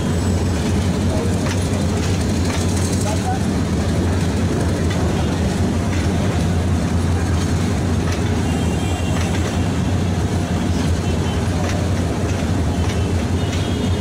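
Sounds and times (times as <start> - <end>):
train rumbling along tracks: 0.0 - 14.0
wheel clicks over rails: 0.5 - 13.9.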